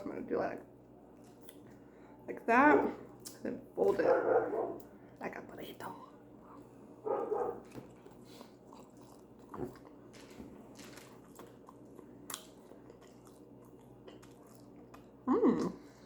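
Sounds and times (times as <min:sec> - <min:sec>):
person chewing food: 0:06.3 - 0:15.2
small crunches and clicks: 0:08.8 - 0:15.1.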